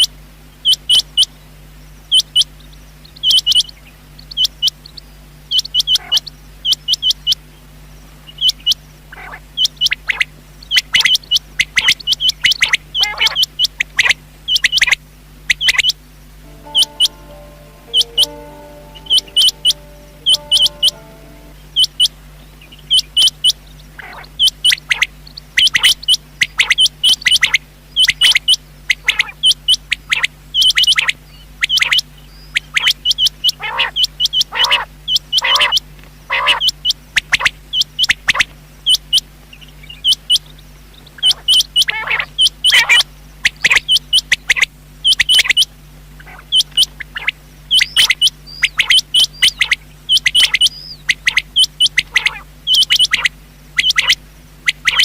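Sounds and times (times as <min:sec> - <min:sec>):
faint steady hum: 0:00.0 - 0:30.6, 0:35.9 - 0:55.0
quail calling: 0:46.2 - 0:55.0.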